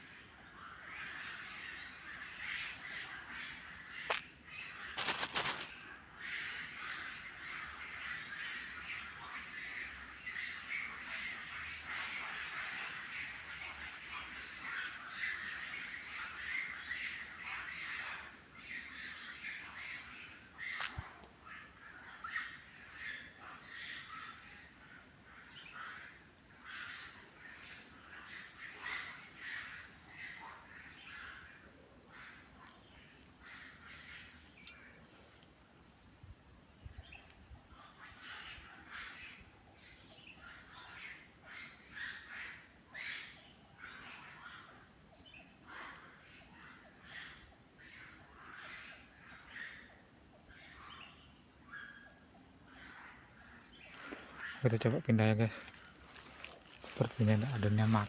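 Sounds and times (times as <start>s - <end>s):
insects chorus: 0.0s - 58.0s
sharp click: 4.1s - 4.3s.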